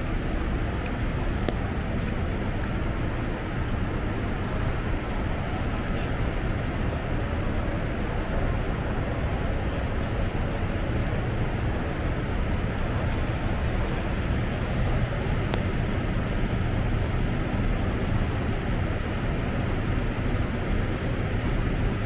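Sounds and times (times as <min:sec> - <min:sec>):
street traffic: 0:00.0 - 0:22.0
wind: 0:00.0 - 0:22.0.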